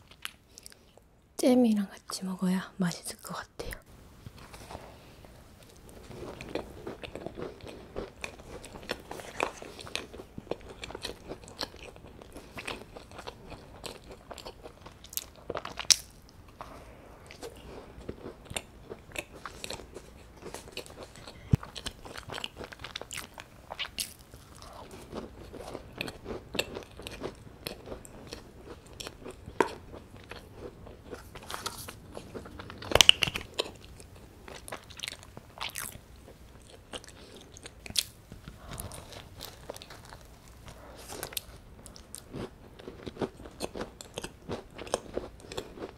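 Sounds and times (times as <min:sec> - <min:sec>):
crumbly chewing: 0:04.2 - 0:45.9.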